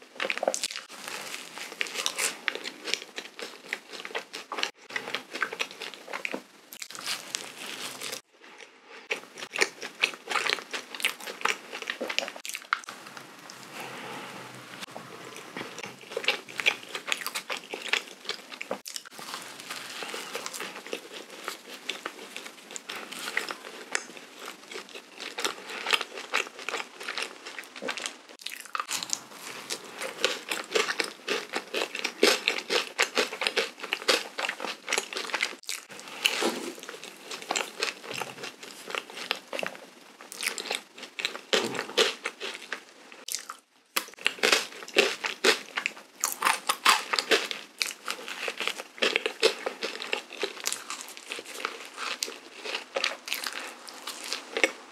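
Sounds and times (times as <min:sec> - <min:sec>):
chewing doughnut: 0:00.0 - 0:14.0, 0:14.8 - 0:54.9.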